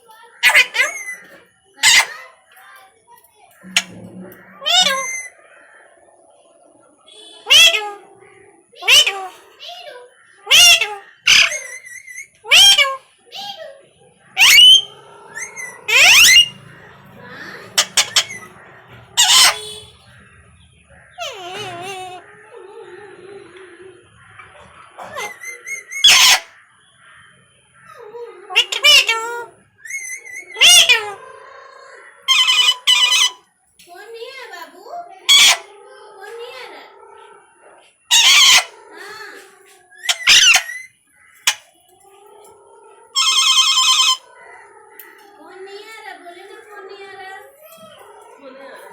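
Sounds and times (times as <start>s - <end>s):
parrot calling: 0.0s - 2.3s, 3.6s - 5.6s, 7.1s - 13.7s, 14.3s - 26.6s, 27.8s - 31.3s, 32.0s - 33.5s, 35.2s - 35.8s, 37.6s - 45.3s
parrot screech: 0.4s - 2.2s, 3.7s - 5.4s, 7.2s - 8.1s, 10.5s - 13.6s, 14.4s - 20.1s, 21.1s - 22.2s, 25.0s - 26.6s, 28.5s - 31.2s, 32.2s - 33.4s, 35.3s - 35.7s, 38.1s - 39.3s, 40.0s - 41.7s, 43.2s - 44.3s.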